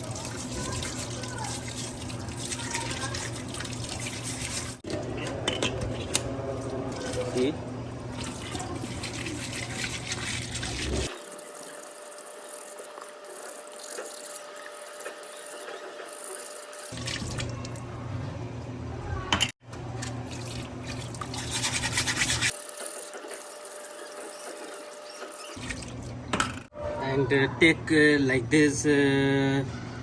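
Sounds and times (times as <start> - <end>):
tap water running: 0.0 - 17.8, 19.8 - 26.4
brush scrubbing metal parts: 20.9 - 25.8.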